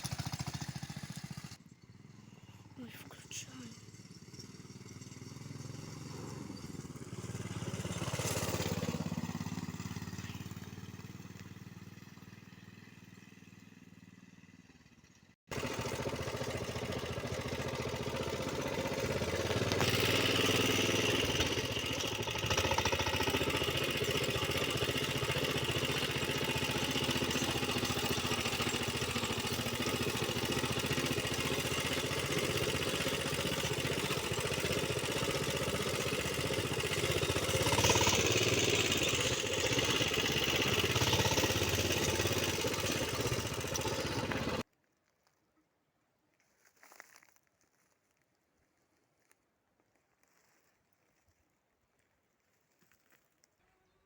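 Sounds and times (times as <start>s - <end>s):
small vehicle engine: 0.0s - 44.7s.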